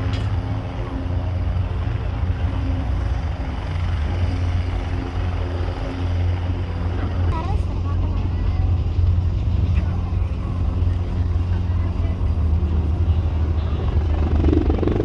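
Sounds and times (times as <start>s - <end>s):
helicopter flying: 0.0s - 15.0s.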